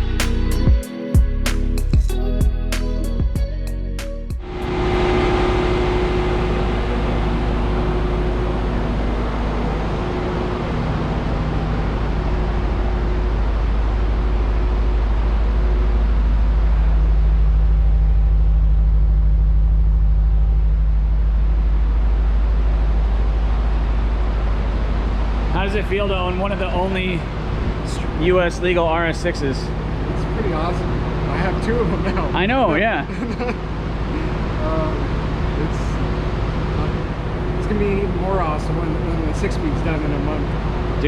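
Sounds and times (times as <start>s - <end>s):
car engine running: 0.0s - 41.0s.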